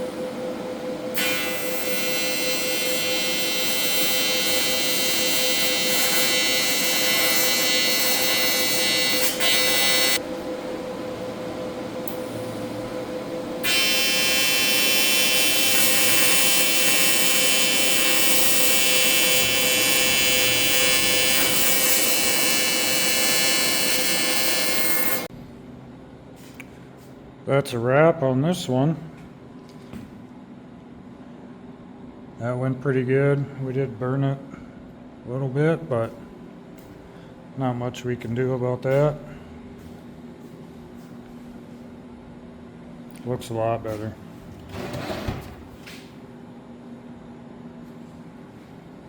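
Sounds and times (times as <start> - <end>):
steady hum: 0.0 - 49.0
welding arc buzzing: 1.1 - 10.5, 11.9 - 25.3.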